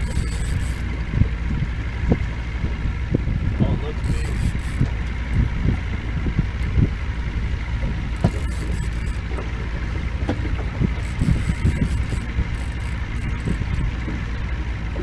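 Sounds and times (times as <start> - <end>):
boat motor running: 0.0 - 15.0
wind buffeting microphone: 0.0 - 15.0.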